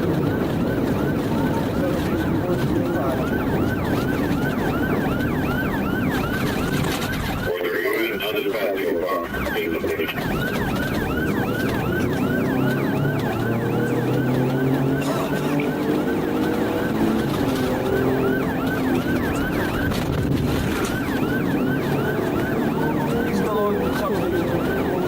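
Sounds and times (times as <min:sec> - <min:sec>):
vehicle engine running hard: 0:00.0 - 0:07.5, 0:09.3 - 0:25.0
police siren yelping: 0:00.0 - 0:25.0.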